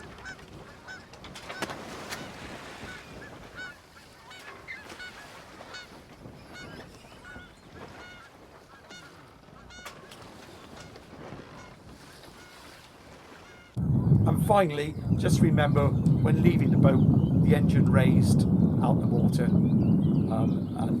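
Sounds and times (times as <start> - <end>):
geese honking: 0.1 - 6.0, 6.6 - 13.8.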